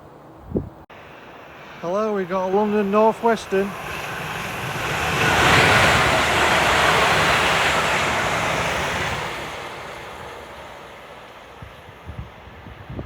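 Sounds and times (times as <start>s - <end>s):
electric train passing at speed: 0.0s - 13.0s.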